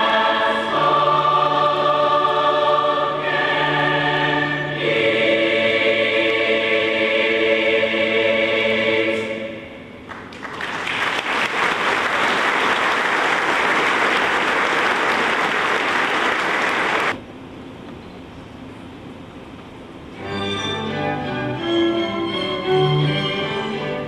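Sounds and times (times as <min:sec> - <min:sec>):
choir singing held chord: 0:00.0 - 0:10.0
audience applauding: 0:10.1 - 0:17.2.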